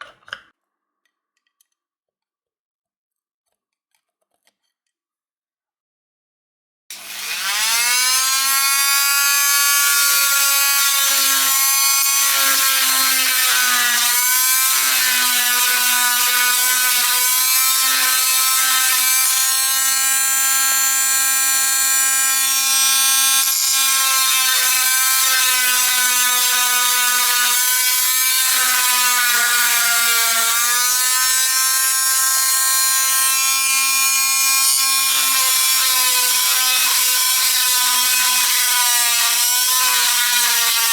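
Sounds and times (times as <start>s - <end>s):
power tool motor whining: 6.9s - 38.4s.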